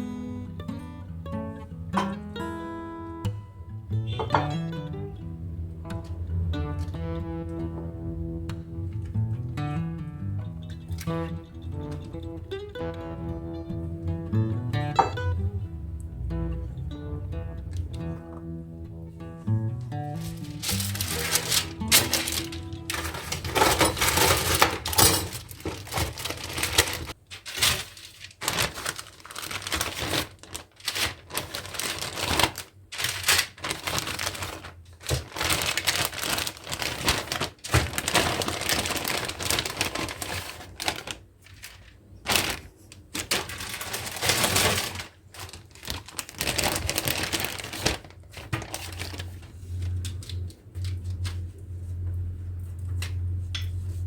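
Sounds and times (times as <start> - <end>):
food crinkling and clicking: 20.2 - 51.6.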